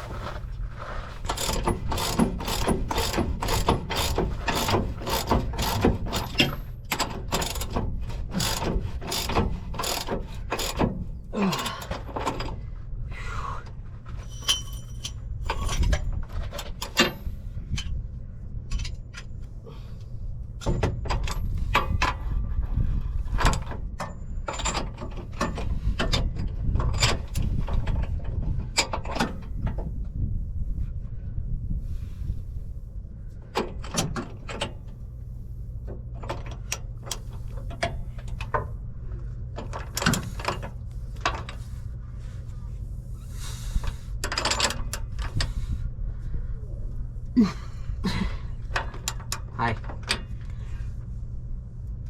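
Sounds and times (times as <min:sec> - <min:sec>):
ratchet wrench clicking: 0:01.3 - 0:10.9
low rumble: 0:29.4 - 0:33.6, 0:45.1 - 0:49.6.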